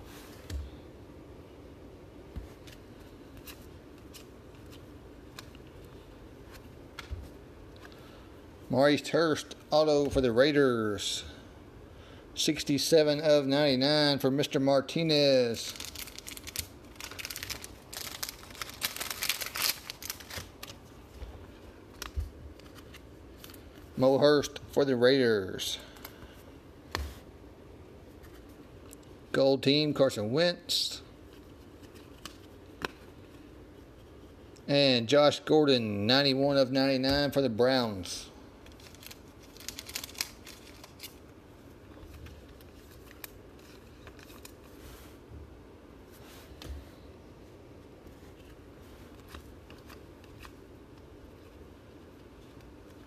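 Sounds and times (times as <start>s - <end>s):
card packs rustling and clicking: 15.5s - 21.2s, 38.6s - 41.2s.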